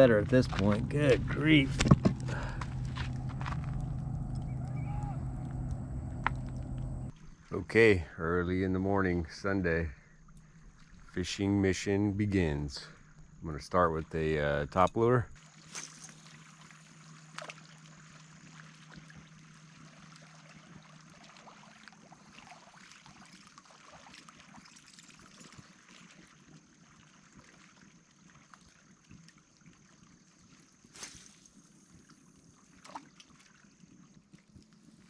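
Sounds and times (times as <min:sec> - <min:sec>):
water trickling: 0:00.0 - 0:07.5, 0:15.4 - 0:30.9.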